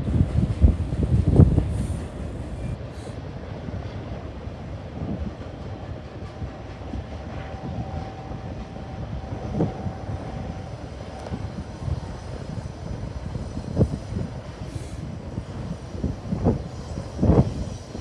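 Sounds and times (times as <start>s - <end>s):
train cars rolling past: 0.0s - 18.0s
thin steady squeal: 6.2s - 18.0s.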